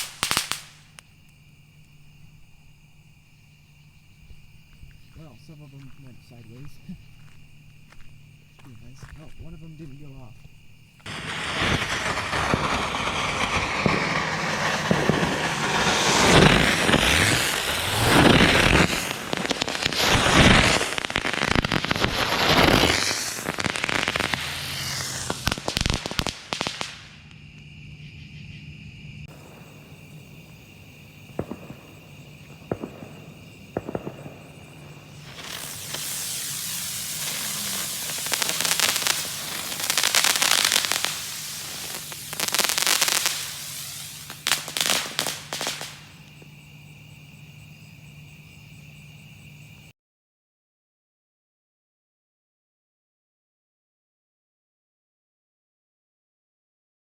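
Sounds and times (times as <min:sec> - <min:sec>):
sharp firework pops: 0:00.0 - 0:01.4, 0:08.6 - 0:27.7, 0:29.3 - 0:46.6
fireworks crackling and whining: 0:00.0 - 0:02.6, 0:04.2 - 0:27.7, 0:29.2 - 0:46.6.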